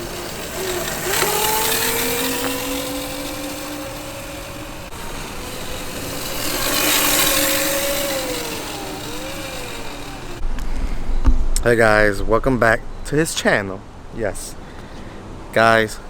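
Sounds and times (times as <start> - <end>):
electric dirt bike motor whining: 0.0 - 11.1
rushes of noise: 0.0 - 16.0.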